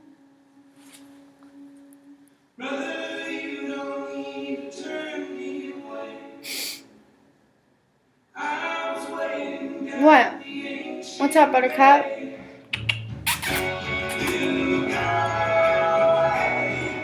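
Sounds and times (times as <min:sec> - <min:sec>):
choir singing: 0:02.6 - 0:06.5, 0:08.4 - 0:12.6, 0:13.7 - 0:17.0.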